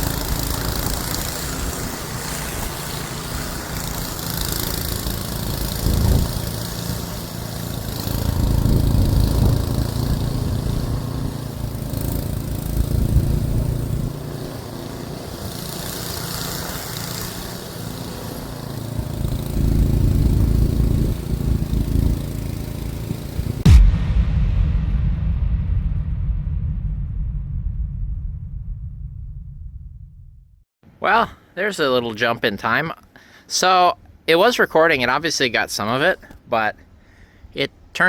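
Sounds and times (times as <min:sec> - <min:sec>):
rushing hiss: 0:00.0 - 0:21.6
snowblower engine running: 0:00.0 - 0:23.7.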